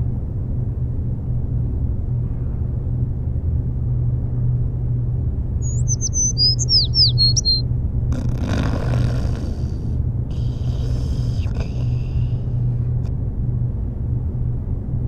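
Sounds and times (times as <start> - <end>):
steady low rumble: 0.0 - 15.0
bird chirping and whistling: 5.6 - 7.6.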